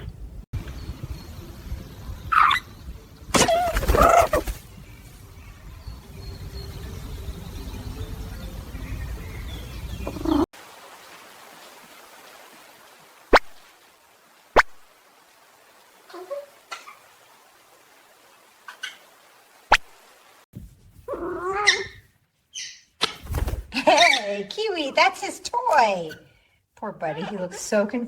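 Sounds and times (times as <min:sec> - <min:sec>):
animal calls: 0:02.3 - 0:02.7, 0:03.4 - 0:04.6, 0:09.9 - 0:10.5, 0:21.1 - 0:23.2.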